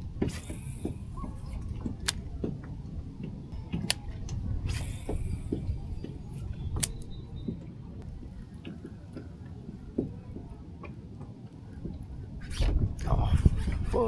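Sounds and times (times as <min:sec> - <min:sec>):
wind rumble on microphone: 0:00.0 - 0:14.0
light clicks and taps of gear: 0:00.2 - 0:12.1.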